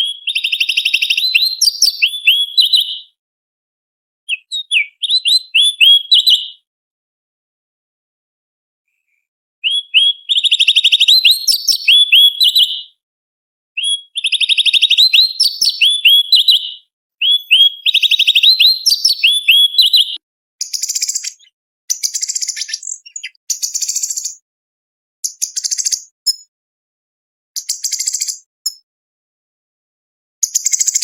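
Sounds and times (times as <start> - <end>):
bird singing chattering trills: 4.3 - 6.5, 13.8 - 24.4.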